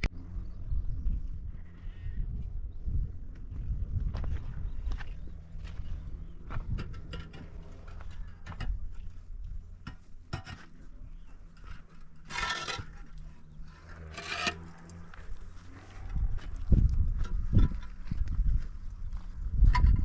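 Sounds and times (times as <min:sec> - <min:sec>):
rasping scrapes: 0:09.9 - 0:16.3.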